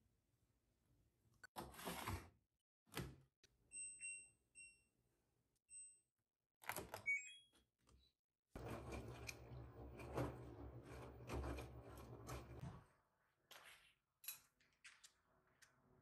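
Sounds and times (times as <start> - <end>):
sliding scrape: 8.6 - 12.8.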